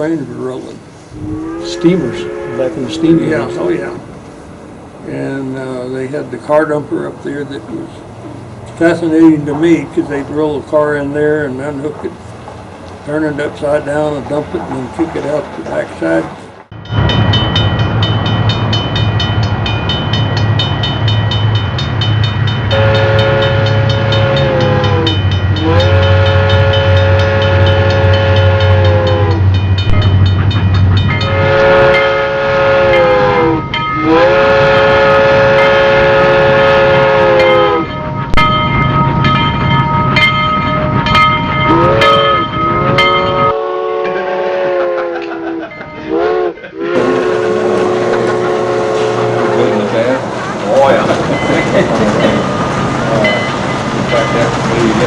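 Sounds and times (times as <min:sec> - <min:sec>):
low engine rumble: 0:00.0 - 0:55.0
train horn blasts: 0:01.1 - 0:04.1, 0:22.7 - 0:30.3, 0:31.0 - 0:38.6, 0:40.8 - 0:45.4, 0:46.0 - 0:50.2.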